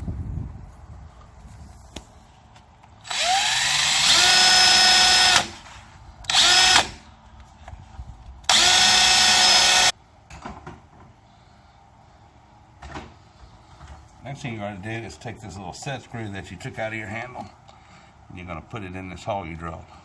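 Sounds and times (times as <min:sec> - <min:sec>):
power drill whining: 0:03.0 - 0:05.7, 0:06.3 - 0:07.0, 0:08.5 - 0:09.9.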